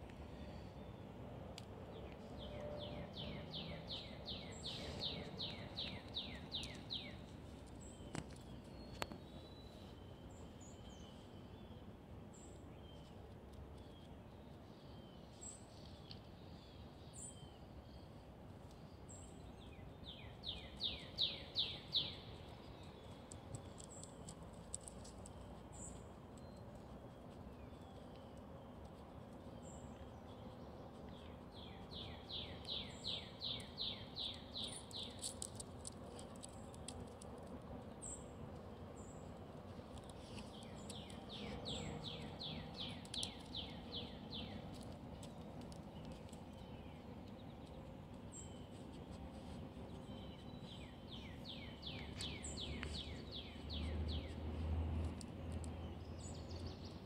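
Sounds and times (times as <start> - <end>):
steady low background hum: 0.0 - 57.0
songbird singing falling notes: 1.6 - 11.8, 39.9 - 48.8.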